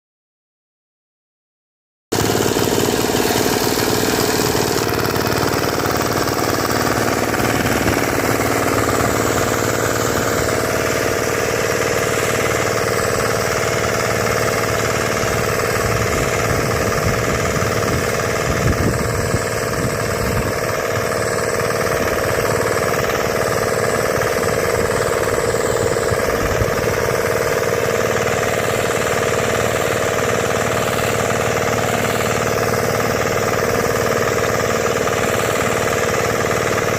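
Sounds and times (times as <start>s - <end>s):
small tractor engine chugging: 2.1s - 36.9s.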